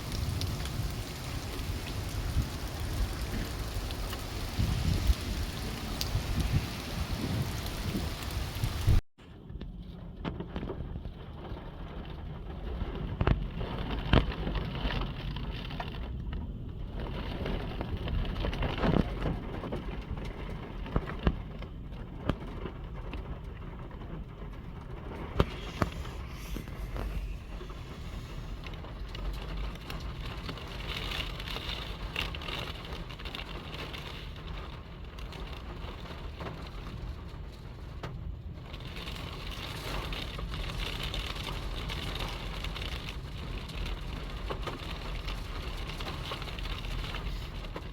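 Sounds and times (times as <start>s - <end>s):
rain falling: 0.0s - 9.0s, 9.8s - 47.9s
wind gusting on microphone: 0.0s - 9.0s, 24.3s - 31.4s.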